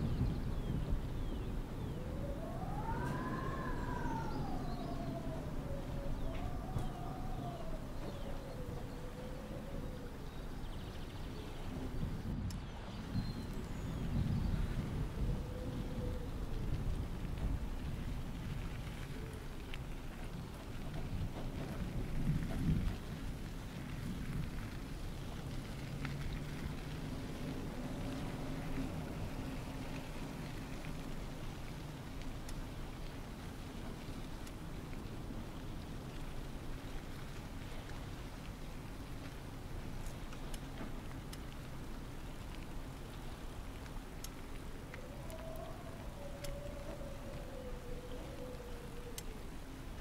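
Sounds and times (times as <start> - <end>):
wind buffeting microphone: 0.0 - 50.0
slow wailing tone: 1.9 - 9.8
faint ticks: 15.8 - 50.0.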